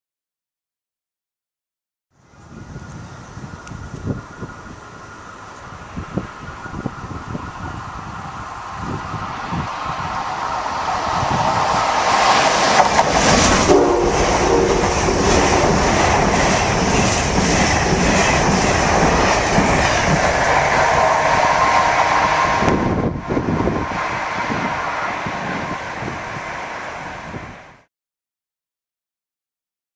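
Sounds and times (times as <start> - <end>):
passing train rushing: 2.2 - 27.9
wheels clacking over rail joints: 9.4 - 27.2
train horn: 13.3 - 17.1, 19.6 - 23.8.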